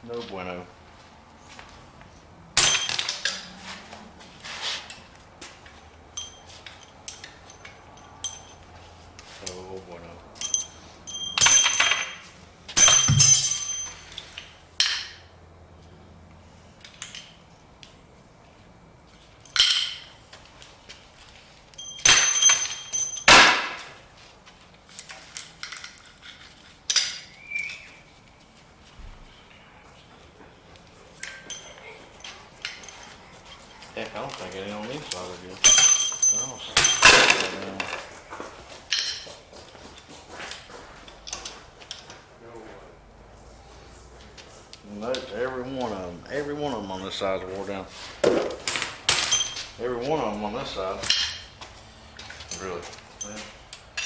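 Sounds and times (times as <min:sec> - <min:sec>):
metal parts clanking: 0:02.6 - 0:03.5, 0:10.4 - 0:15.2, 0:19.3 - 0:20.2, 0:21.8 - 0:24.0, 0:31.2 - 0:33.2, 0:34.5 - 0:38.1, 0:48.2 - 0:49.8, 0:51.0 - 0:51.6
sharp metallic clinks: 0:02.6 - 0:03.5, 0:05.8 - 0:08.8, 0:10.3 - 0:15.2, 0:19.2 - 0:20.2, 0:21.7 - 0:24.1, 0:30.8 - 0:33.6, 0:34.4 - 0:38.0, 0:38.9 - 0:39.4, 0:48.7 - 0:51.6, 0:52.2 - 0:54.0.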